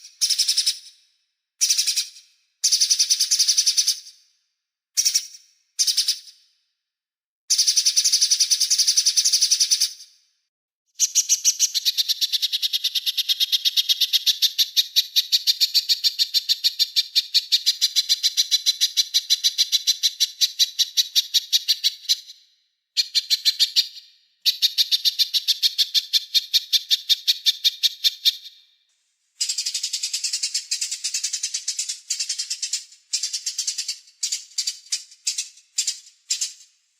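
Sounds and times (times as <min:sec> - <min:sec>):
songbird singing rapid trills: 0:11.0 - 0:22.4, 0:29.4 - 0:36.7.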